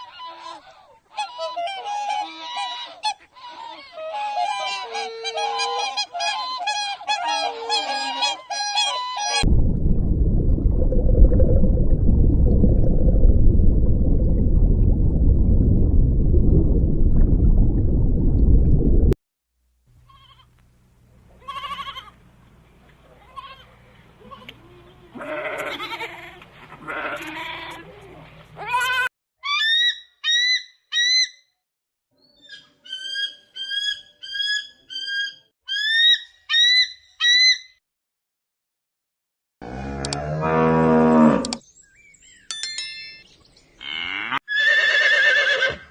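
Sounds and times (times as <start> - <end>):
cow mooing: 39.6 - 41.6, 43.8 - 44.4.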